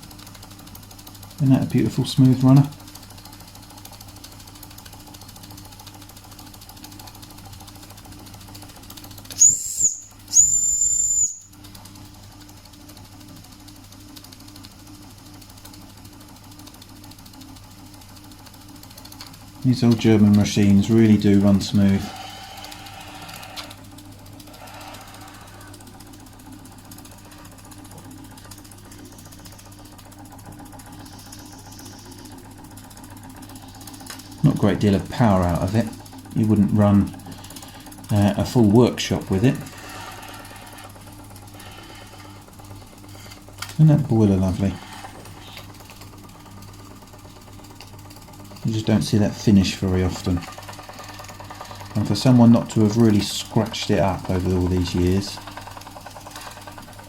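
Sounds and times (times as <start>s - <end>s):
steam engine running: 0.0s - 14.3s, 15.3s - 57.0s
light mechanical clatter: 0.0s - 57.0s
steam whistle toots: 9.4s - 11.5s.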